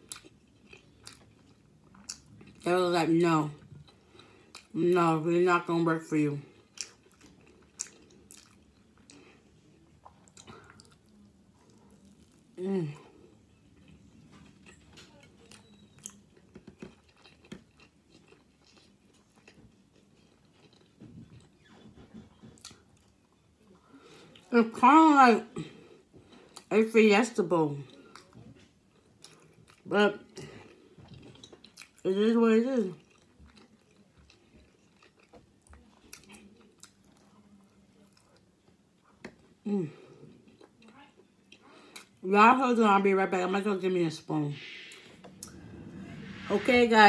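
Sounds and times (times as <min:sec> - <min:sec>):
chewing soft food: 0:00.0 - 0:02.7, 0:03.5 - 0:04.8, 0:06.4 - 0:24.5, 0:27.8 - 0:32.1, 0:32.8 - 0:42.2.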